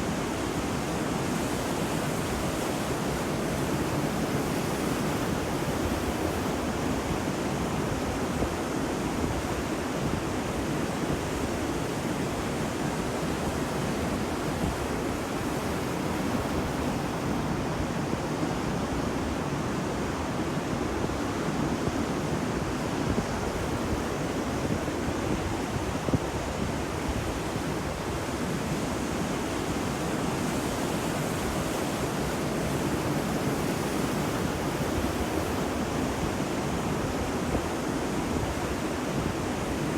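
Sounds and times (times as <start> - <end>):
ocean surf roar: 10.4 - 39.9.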